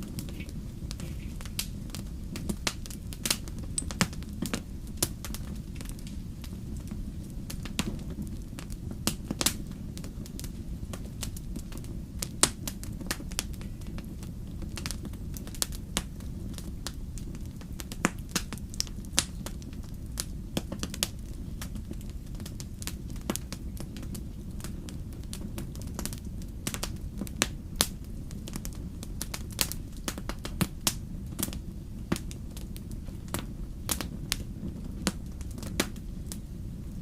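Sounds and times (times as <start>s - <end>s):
burning logs crackling and popping: 0.0s - 37.0s
fire low rumble: 0.0s - 37.0s.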